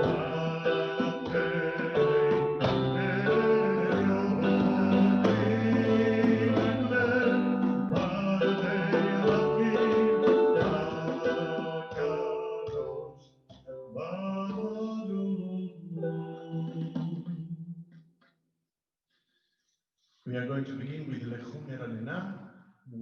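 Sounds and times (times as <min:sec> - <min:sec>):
man singing liturgical melody: 0:00.0 - 0:13.2, 0:13.8 - 0:17.2
instrumental accompaniment: 0:00.0 - 0:14.0.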